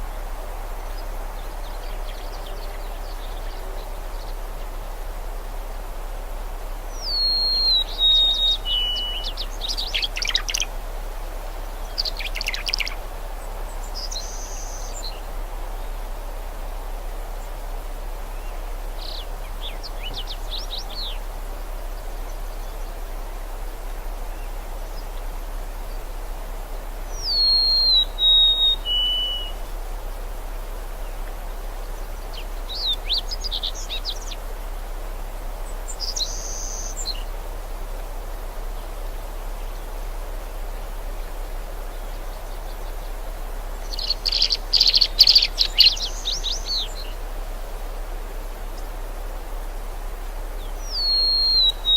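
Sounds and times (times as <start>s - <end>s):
steady background hiss: 0.0s - 51.9s
birds chirping and whistling: 7.0s - 10.7s, 27.2s - 29.5s, 43.9s - 47.1s, 50.8s - 51.9s.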